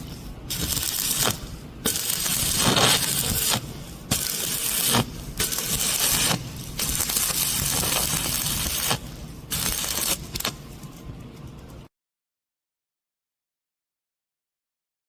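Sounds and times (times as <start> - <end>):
welding arc crackling and hissing: 0.0 - 11.0.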